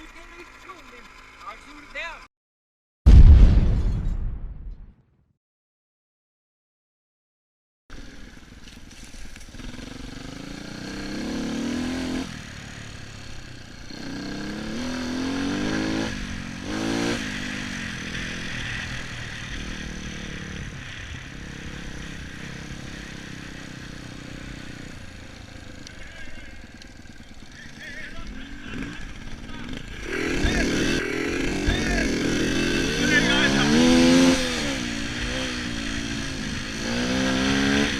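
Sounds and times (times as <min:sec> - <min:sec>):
dirt bike engine revving: 0:07.9 - 0:37.9.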